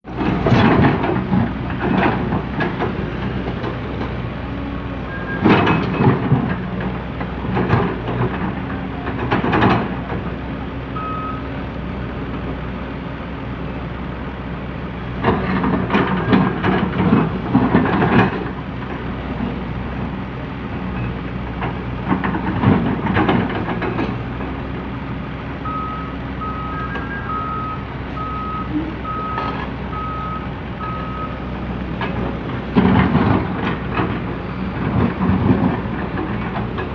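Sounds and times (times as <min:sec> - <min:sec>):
excavator diesel engine running: 0:00.0 - 0:36.9
single beep: 0:11.0 - 0:11.4, 0:25.7 - 0:31.4.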